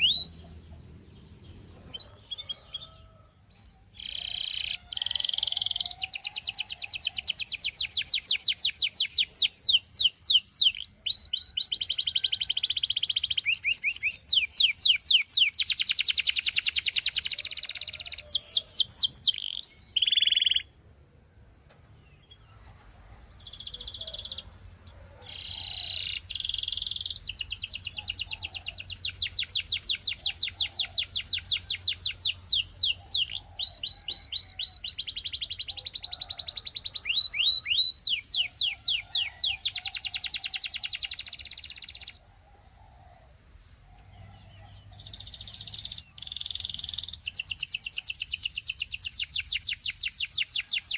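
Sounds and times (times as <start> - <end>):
canary singing trills: 0.0 - 20.8, 22.0 - 42.3, 43.9 - 50.9.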